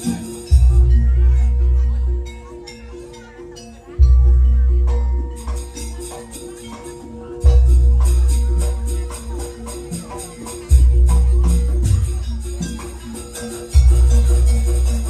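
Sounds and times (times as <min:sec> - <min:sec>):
jingling metallic percussion: 0:00.0 - 0:15.0.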